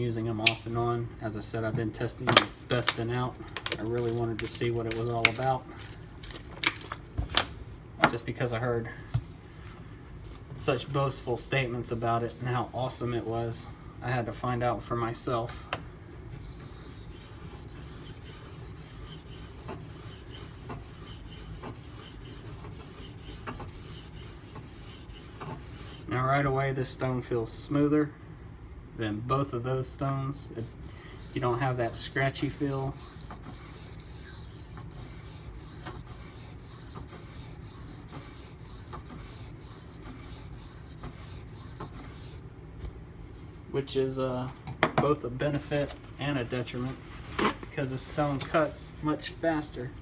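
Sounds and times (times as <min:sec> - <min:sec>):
knife grinding on sharpening stone: 0:16.3 - 0:26.1, 0:30.5 - 0:42.4.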